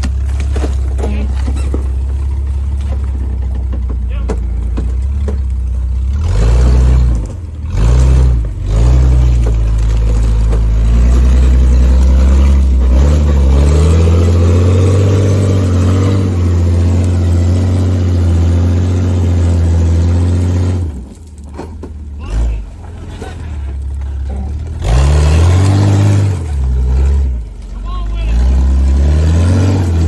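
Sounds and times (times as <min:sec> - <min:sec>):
off-road vehicle engine revving: 0:00.0 - 0:30.0.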